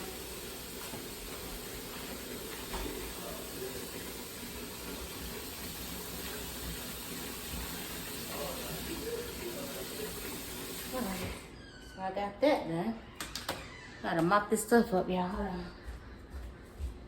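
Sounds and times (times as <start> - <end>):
tap water running: 0.0 - 11.6.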